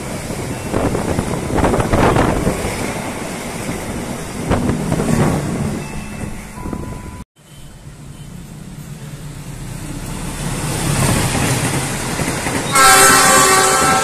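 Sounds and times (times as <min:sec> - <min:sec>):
train running noise: 0:00.0 - 0:14.0
train horn: 0:12.7 - 0:14.0.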